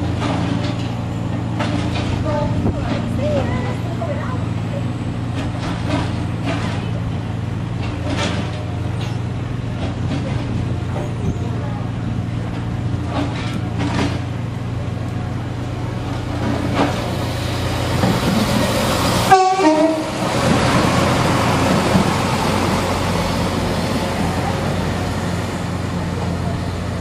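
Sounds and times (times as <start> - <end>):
rumble of train carriages: 0.0 - 27.0
train engine droning: 0.0 - 27.0
train horn: 19.2 - 20.2.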